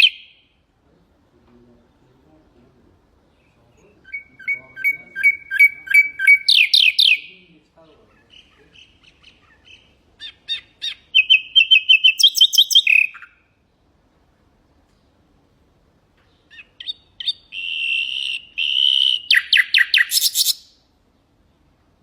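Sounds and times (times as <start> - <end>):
nightingale singing: 0.0 - 0.7, 3.2 - 13.9, 16.2 - 21.4.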